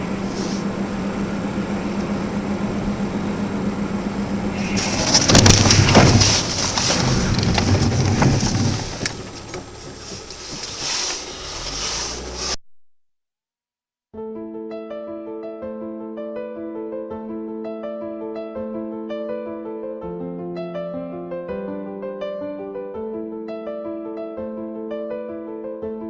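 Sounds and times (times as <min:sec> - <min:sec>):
car engine and road noise: 0:00.0 - 0:12.6
rumbling: 0:00.0 - 0:12.6
car collision impact: 0:04.4 - 0:10.8.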